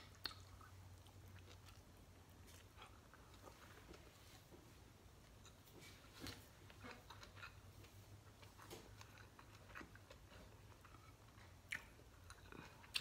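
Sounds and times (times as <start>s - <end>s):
chewing with mouth closed: 0.0s - 3.8s, 6.7s - 13.0s
low steady hum: 0.0s - 13.0s.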